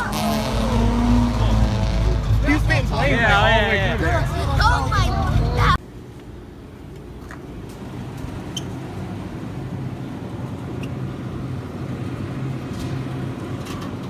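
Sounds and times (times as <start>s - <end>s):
car engine running: 0.0s - 5.8s
road noise: 0.0s - 14.0s.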